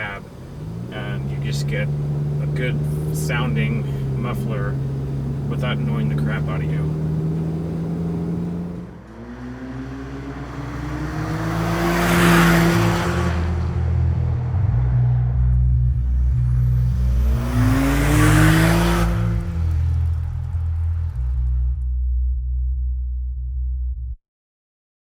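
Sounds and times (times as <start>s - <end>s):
truck exhaust accelerating: 0.0s - 24.1s.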